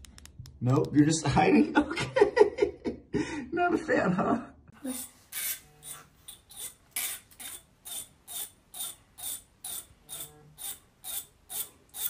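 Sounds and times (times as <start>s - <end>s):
comb teeth scratching: 4.9s - 12.0s.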